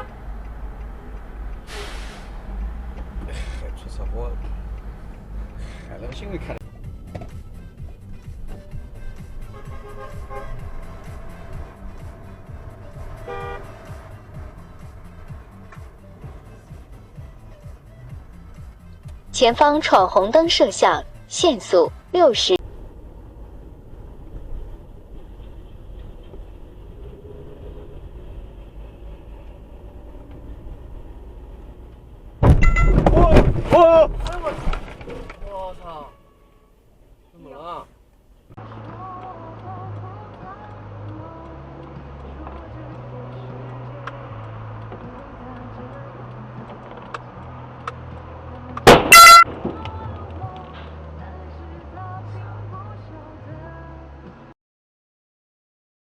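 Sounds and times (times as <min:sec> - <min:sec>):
car engine and road rumble: 0:00.0 - 0:54.5
loud bang: 0:32.4 - 0:34.7, 0:48.9 - 0:49.8
short pitched blast: 0:48.9 - 0:49.8.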